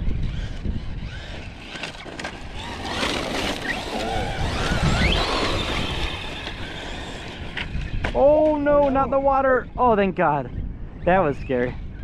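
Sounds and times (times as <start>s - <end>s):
electric motor whining: 0.0s - 9.2s
wind rumbling on microphone: 0.0s - 12.0s.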